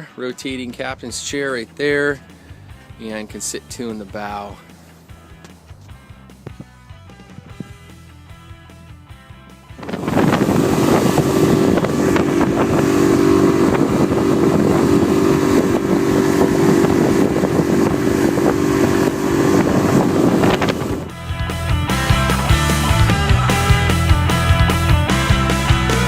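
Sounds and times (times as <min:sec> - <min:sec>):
wind on microphone: 0:07.3 - 0:07.9, 0:09.8 - 0:21.5
outboard motor running: 0:09.8 - 0:26.0.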